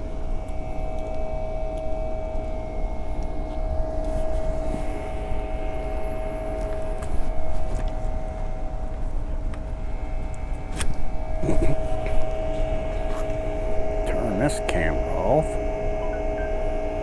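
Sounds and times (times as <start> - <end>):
mechanical hum with whine: 0.0 - 17.0.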